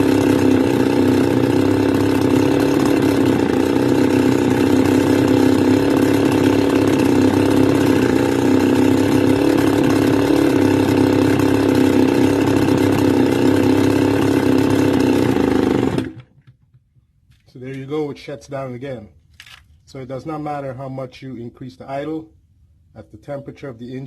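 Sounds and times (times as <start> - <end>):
brush cutter engine idling: 0.0 - 16.7.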